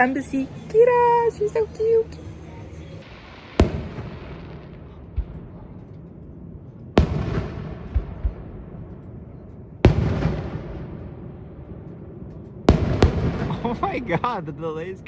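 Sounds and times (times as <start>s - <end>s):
firework booms echoing: 3.1s - 5.9s, 6.9s - 9.0s, 9.8s - 11.4s, 12.7s - 14.1s
faint low thumps: 3.6s - 14.2s.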